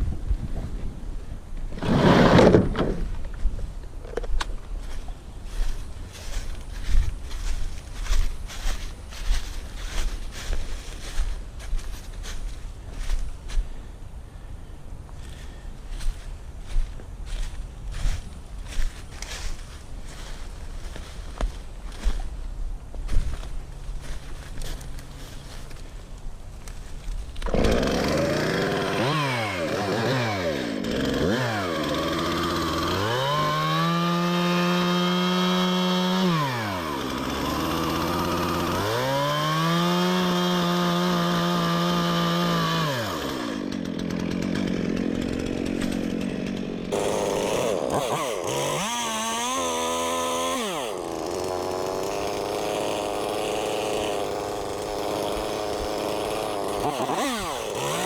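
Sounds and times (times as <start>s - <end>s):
chainsaw sawing a log: 1.7s - 2.7s, 27.3s - 58.0s.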